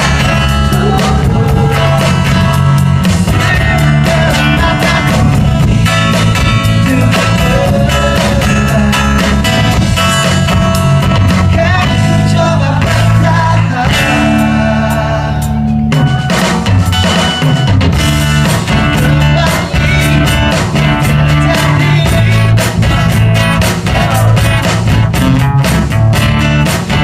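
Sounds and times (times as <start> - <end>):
person singing: 0.0 - 5.7, 6.6 - 9.7, 11.3 - 15.8, 18.5 - 23.1, 23.8 - 24.5
bass guitar: 0.0 - 27.0
drums: 0.0 - 27.0
electric guitar: 0.0 - 27.0.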